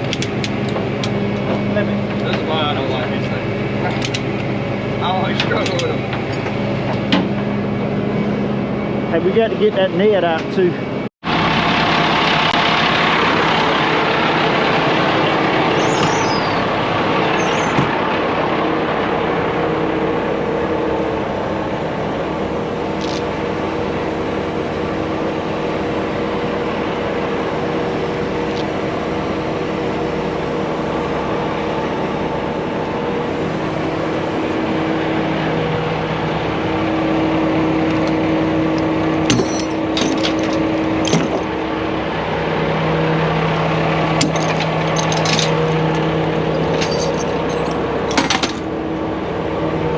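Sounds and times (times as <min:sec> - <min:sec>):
metallic clanks: 0:00.0 - 0:02.5, 0:03.8 - 0:04.4, 0:05.4 - 0:07.5, 0:39.2 - 0:41.5, 0:44.2 - 0:48.7
heavy truck engine running: 0:00.0 - 0:49.9.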